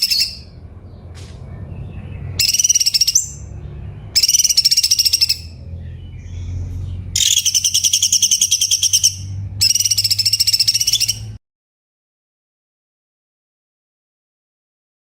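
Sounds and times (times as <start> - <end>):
bird song with trilled phrases: 0.0 - 11.4.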